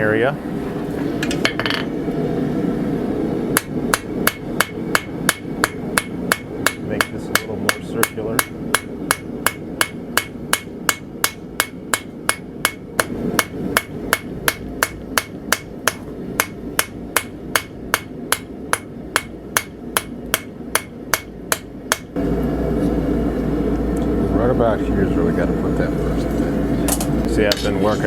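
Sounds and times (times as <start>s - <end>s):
hammer striking steel on anvil: 3.6s - 22.1s.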